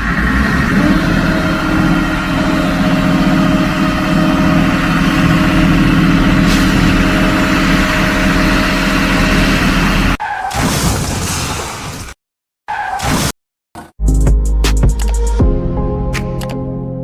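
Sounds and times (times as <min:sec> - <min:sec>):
diesel engine idling: 0:00.0 - 0:10.2.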